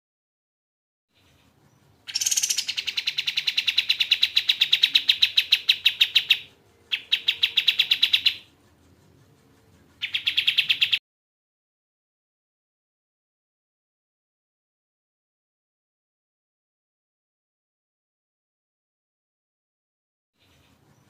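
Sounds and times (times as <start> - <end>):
songbird trilling: 2.1 - 8.5, 10.0 - 11.0.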